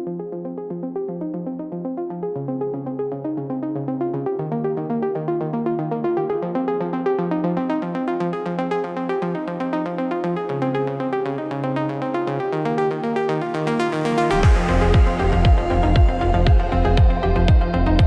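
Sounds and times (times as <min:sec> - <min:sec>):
synthesizer arpeggio over chords: 0:00.0 - 0:18.0
cymbal swell: 0:14.4 - 0:17.4
kick drum: 0:14.4 - 0:18.0.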